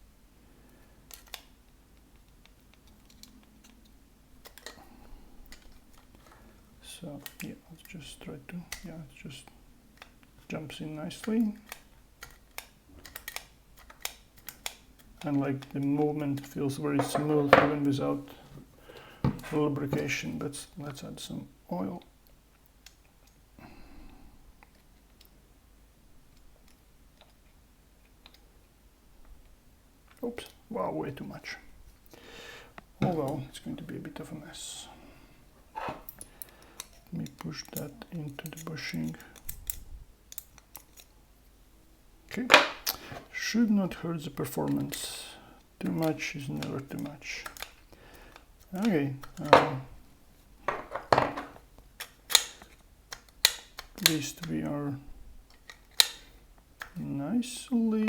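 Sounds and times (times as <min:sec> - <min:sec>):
small clicks and rattles: 0:11.2 - 0:15.8.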